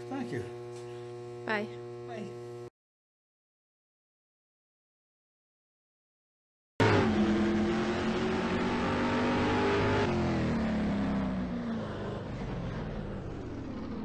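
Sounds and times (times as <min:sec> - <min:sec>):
engine starting and running: 0:06.8 - 0:14.0.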